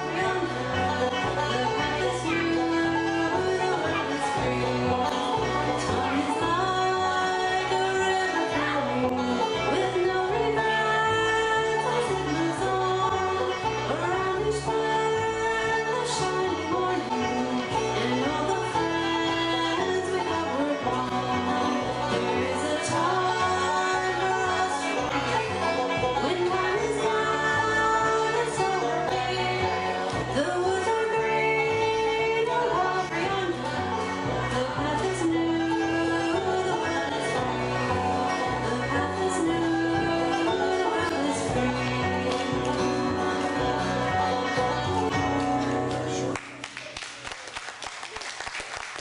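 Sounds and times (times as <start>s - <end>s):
double bass line: 0.0s - 46.4s
plucked strings: 0.0s - 46.5s
guitar: 0.0s - 47.3s
banjo: 0.0s - 48.1s.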